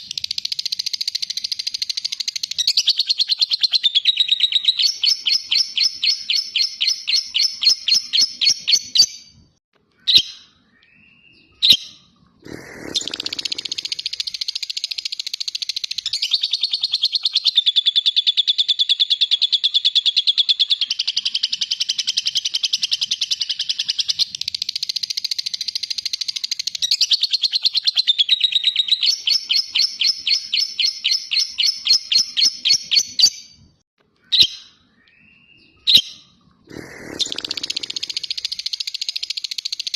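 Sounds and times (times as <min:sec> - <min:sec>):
bird chirps: 0:00.0 - 0:39.9
lovebird chattering trill: 0:11.6 - 0:33.4, 0:35.9 - 0:39.9
short bird calls: 0:34.2 - 0:38.8.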